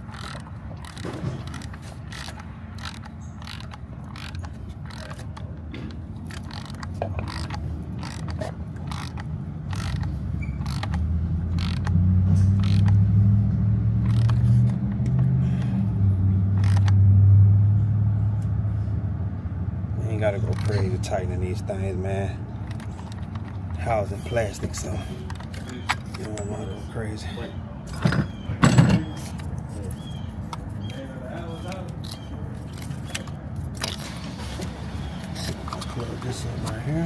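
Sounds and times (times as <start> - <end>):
ratchet wrench clicking: 0.0 - 13.2, 14.0 - 15.7, 16.5 - 17.0, 20.2 - 21.9, 31.6 - 34.0.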